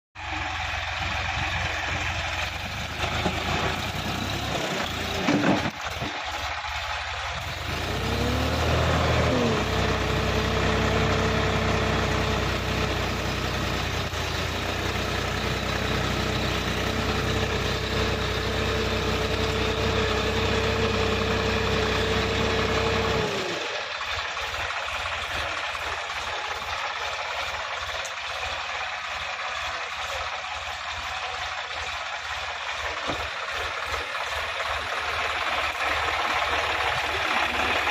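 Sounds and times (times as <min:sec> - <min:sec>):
tractor diesel engine running: 0:00.2 - 0:37.9.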